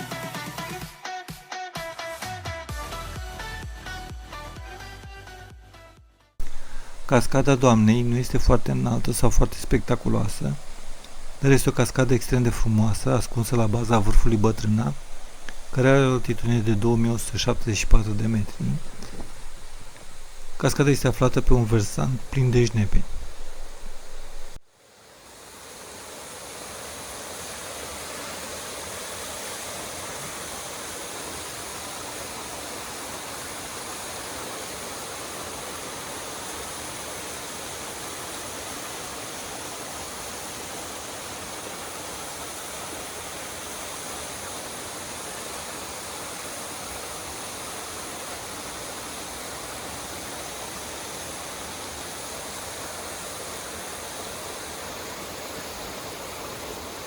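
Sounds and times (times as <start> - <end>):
waterfall rushing: 6.4 - 24.6.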